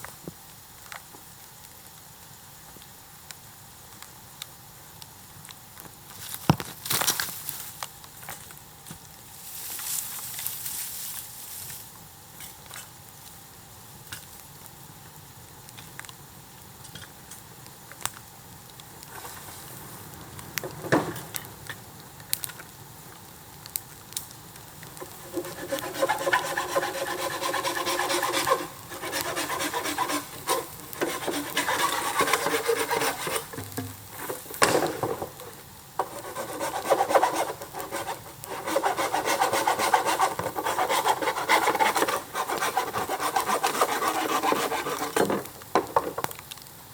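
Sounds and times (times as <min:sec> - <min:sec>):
hand saw cutting bamboo: 0:25.0 - 0:35.4, 0:36.0 - 0:45.5.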